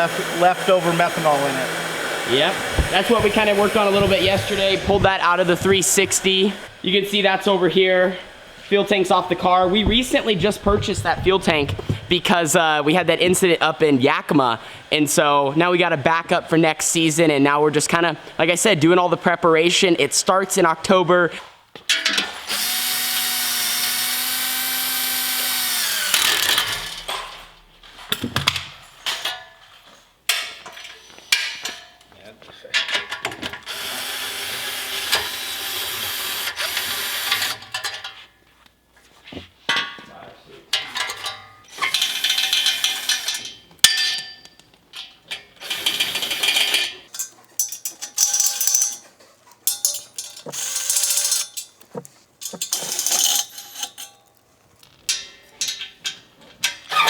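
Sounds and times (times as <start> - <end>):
power drill whining: 0.0 - 6.7, 22.4 - 27.1, 33.6 - 37.7, 41.8 - 43.4, 45.6 - 46.9
clatter of shop work: 2.3 - 6.7, 9.1 - 12.6, 21.7 - 57.0.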